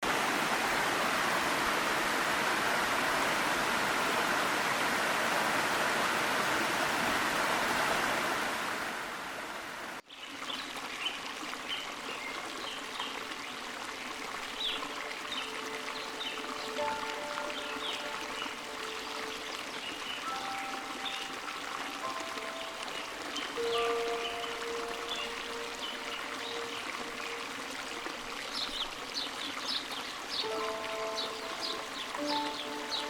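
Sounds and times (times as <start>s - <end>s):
stream water rushing: 0.0s - 33.0s
birds chirping: 14.4s - 33.0s.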